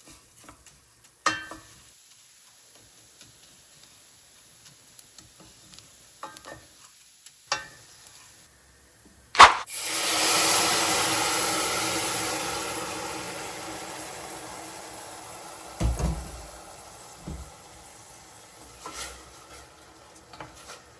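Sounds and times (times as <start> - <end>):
stirring ticks in pan: 0.0 - 8.2
wine hissing in hot pan: 9.7 - 20.9.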